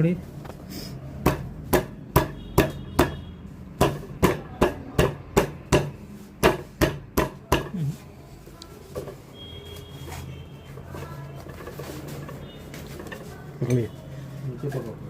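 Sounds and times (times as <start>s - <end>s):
sharp knocks on fan motor: 1.2s - 3.2s, 3.8s - 7.7s.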